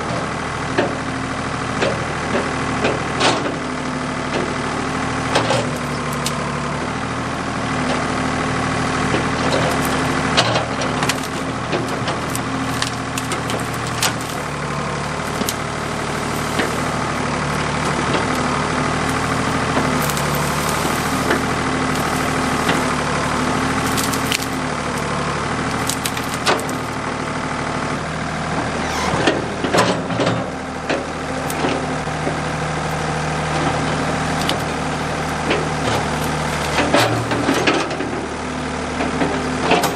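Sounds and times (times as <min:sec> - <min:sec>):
backhoe diesel engine running: 0:00.0 - 0:39.9
wood cracking and snapping: 0:05.1 - 0:06.8, 0:07.6 - 0:27.8, 0:30.9 - 0:38.1.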